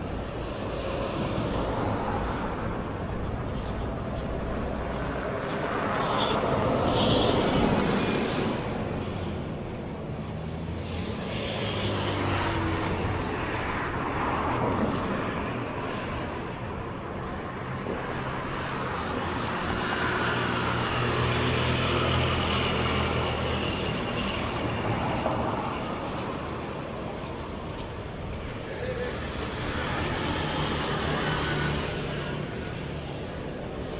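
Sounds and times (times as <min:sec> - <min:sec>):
motor vehicles passing by: 0:17.6 - 0:33.9.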